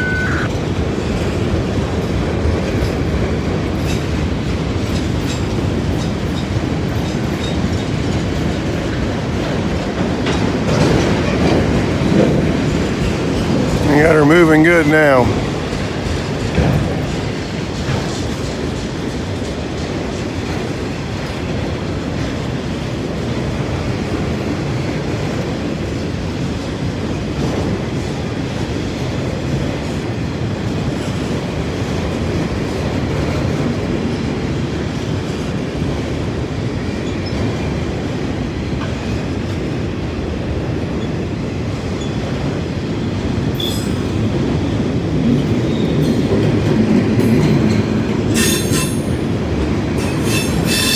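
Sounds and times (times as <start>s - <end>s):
freight train wheels rumbling: 0.6s - 50.9s.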